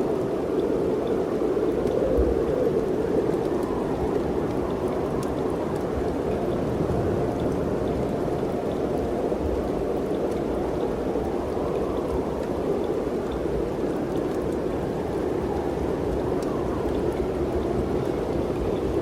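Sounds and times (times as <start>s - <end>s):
wind rushing in trees: 0.0s - 19.0s.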